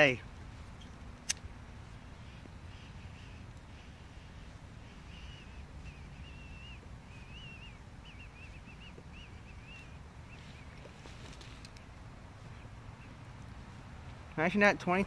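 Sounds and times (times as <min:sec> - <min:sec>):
low outdoor rumble: 0:00.0 - 0:15.0
songbird warbling: 0:01.8 - 0:13.2.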